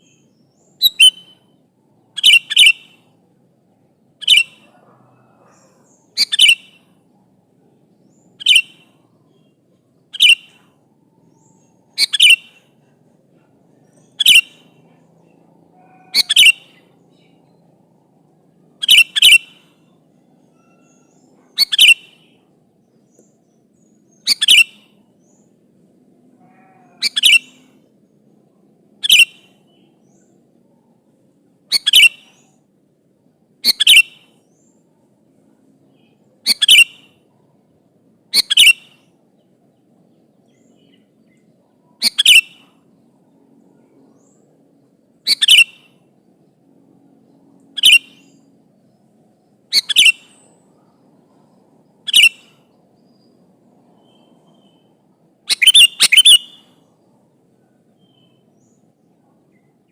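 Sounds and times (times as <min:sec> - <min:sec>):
bulbul calling: 0:00.0 - 0:01.6, 0:02.2 - 0:03.1, 0:04.2 - 0:07.0, 0:08.1 - 0:09.5, 0:10.1 - 0:12.8, 0:13.8 - 0:14.8, 0:15.8 - 0:17.4, 0:18.8 - 0:22.4, 0:23.1 - 0:25.4, 0:26.5 - 0:27.8, 0:29.0 - 0:30.3, 0:31.7 - 0:32.6, 0:33.6 - 0:34.7, 0:36.4 - 0:37.2, 0:38.3 - 0:39.1, 0:40.5 - 0:42.9, 0:45.2 - 0:46.0, 0:47.6 - 0:48.5, 0:49.7 - 0:51.4, 0:52.0 - 0:52.7, 0:54.0 - 0:56.8.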